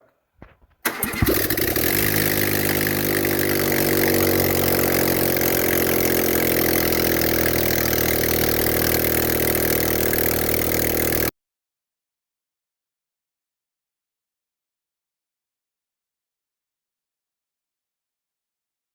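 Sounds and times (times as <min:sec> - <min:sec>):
car engine cranking: 0:00.8 - 0:11.3
car engine idling: 0:00.9 - 0:11.3.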